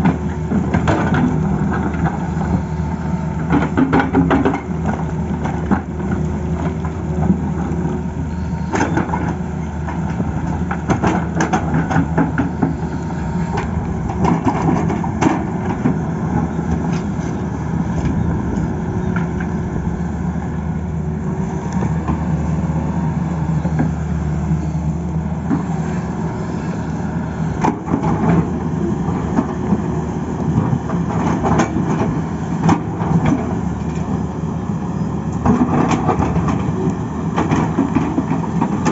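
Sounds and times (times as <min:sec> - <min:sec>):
knocks and scraping clatter: 0:00.0 - 0:02.6, 0:03.4 - 0:08.0, 0:08.7 - 0:19.6, 0:27.6 - 0:34.2, 0:35.3 - 0:38.9
excavator diesel engine running: 0:00.0 - 0:38.9.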